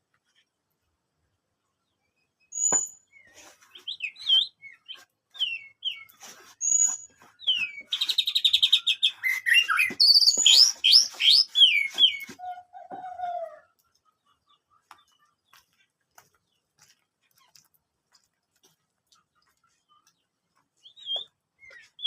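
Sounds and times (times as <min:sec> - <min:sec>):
bird singing whistles and trills: 0:02.4 - 0:13.6, 0:20.8 - 0:22.0.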